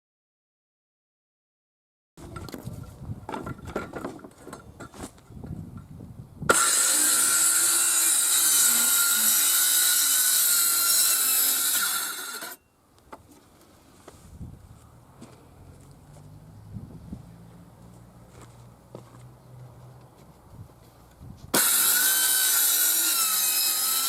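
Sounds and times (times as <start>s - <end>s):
knocks and handling: 2.2s - 5.6s
power tool running: 6.5s - 12.6s, 21.5s - 24.0s.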